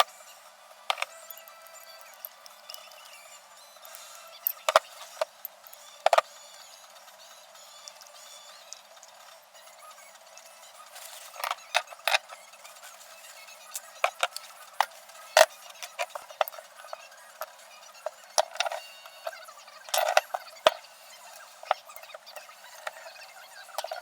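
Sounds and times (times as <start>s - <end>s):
metal tools clinking: 0.9s - 2.9s, 3.9s - 6.2s, 11.3s - 12.4s, 13.8s - 20.8s, 21.4s - 24.0s.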